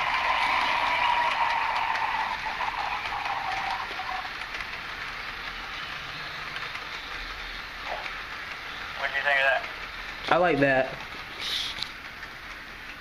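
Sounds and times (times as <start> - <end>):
locomotive running noise: 0.0 - 13.0.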